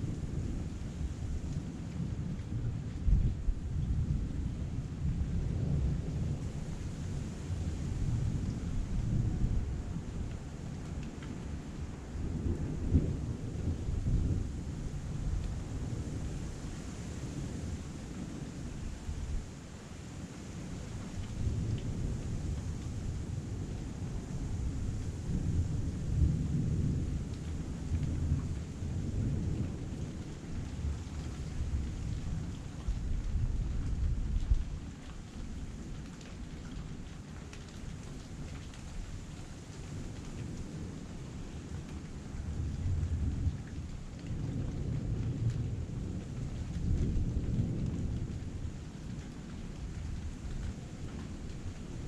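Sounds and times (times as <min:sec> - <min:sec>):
heavy rain: 0:00.0 - 0:52.0
thunder rumbling: 0:39.8 - 0:52.0.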